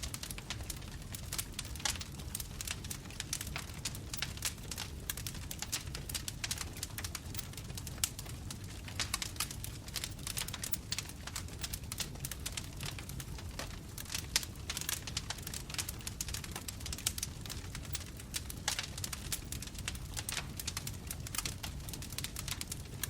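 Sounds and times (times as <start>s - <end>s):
bonfire crackling: 0.0s - 23.0s
low rumble of flames: 0.0s - 23.0s.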